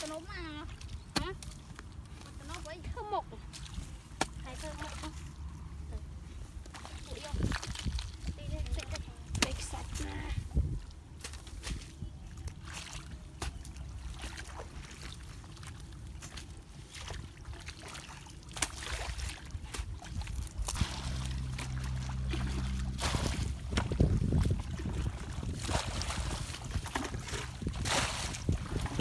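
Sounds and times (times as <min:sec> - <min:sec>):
water splashes: 0:06.7 - 0:29.0
steady low rumble: 0:19.0 - 0:29.0.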